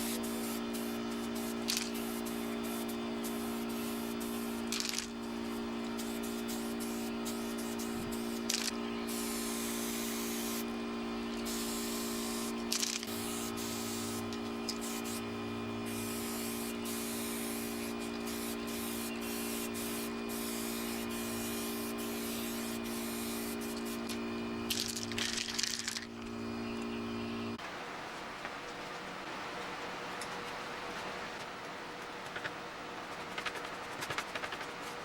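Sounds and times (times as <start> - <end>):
aerosol spray can hissing: 0.0 - 10.6, 11.4 - 15.2, 15.9 - 26.0.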